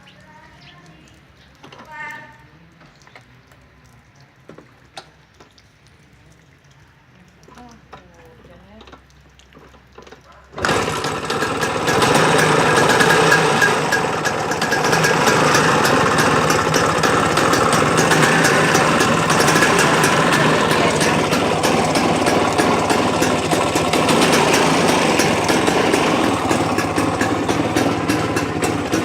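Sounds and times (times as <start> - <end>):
scooter engine starting and running: 10.0 - 29.0.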